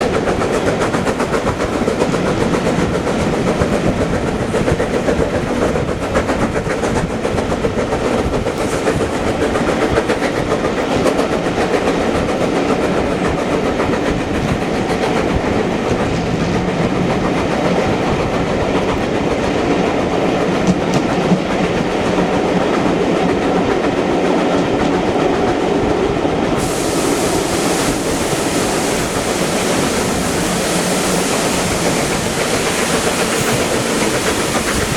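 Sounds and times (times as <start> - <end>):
train wheels clattering on rails: 0.0 - 34.9
steam hiss: 26.5 - 34.9.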